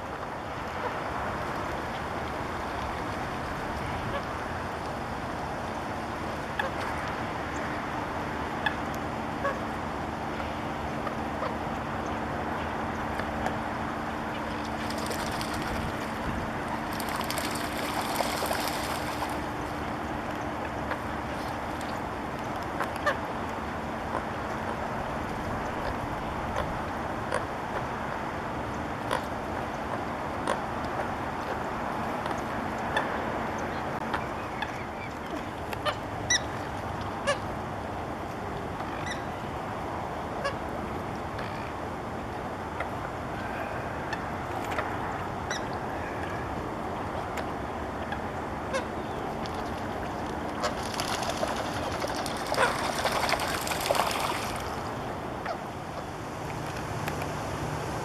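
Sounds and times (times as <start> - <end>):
faint steady hum: 0.0 - 58.0
waterbirds honking: 0.7 - 57.5
wind buffeting microphone: 14.6 - 20.6.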